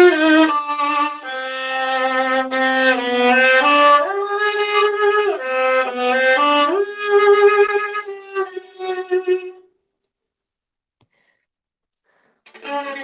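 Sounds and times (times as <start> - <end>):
solo viola bowing: 0.0 - 9.6, 12.5 - 13.0.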